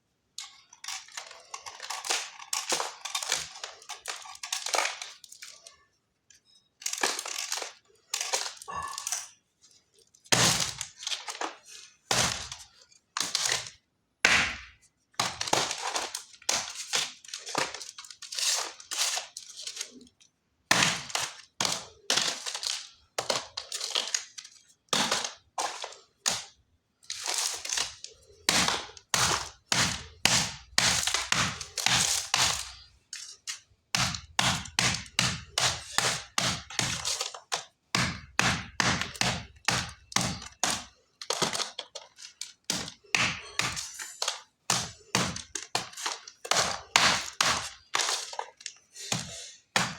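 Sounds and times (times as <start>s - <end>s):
chalk crunching as it is crushed: 20.7s - 49.9s.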